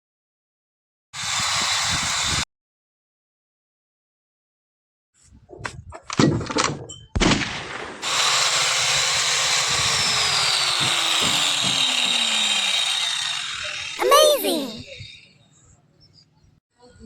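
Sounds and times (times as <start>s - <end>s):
power tool running: 1.2s - 2.4s, 8.0s - 14.1s.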